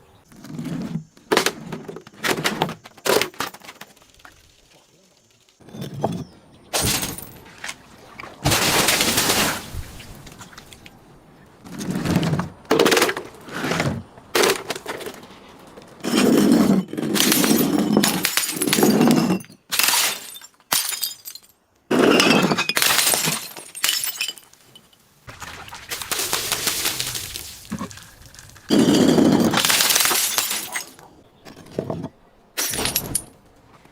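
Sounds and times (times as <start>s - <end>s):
glass crushing and shattering: 5.6s - 7.5s, 16.8s - 31.6s, 32.6s - 33.4s.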